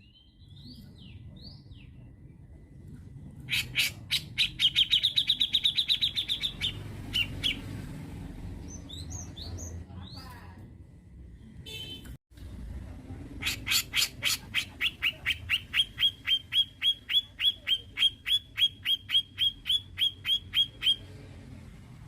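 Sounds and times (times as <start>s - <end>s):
bird calling sharp repeated notes: 3.5s - 7.7s, 13.4s - 21.1s.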